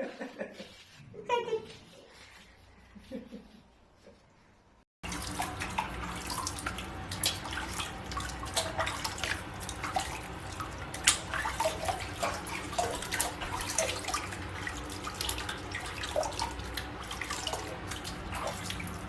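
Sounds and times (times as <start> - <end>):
running water splashing: 5.0 - 19.0.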